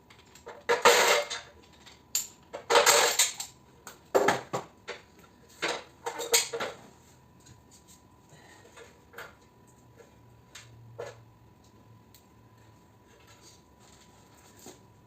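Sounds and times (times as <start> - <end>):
metal scrap clinking and clanking: 0.4 - 3.6.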